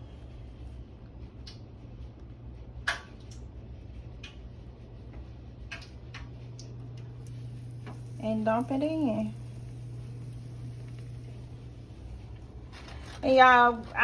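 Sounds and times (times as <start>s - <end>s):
low hum: 6.0s - 14.0s.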